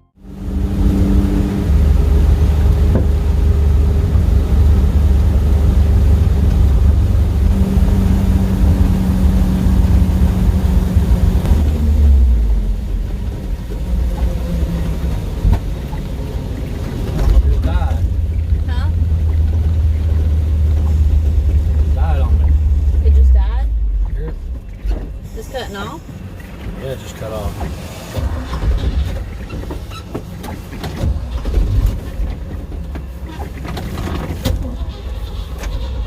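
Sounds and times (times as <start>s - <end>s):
road noise: 0.0s - 36.0s
truck engine rumble: 0.0s - 36.0s.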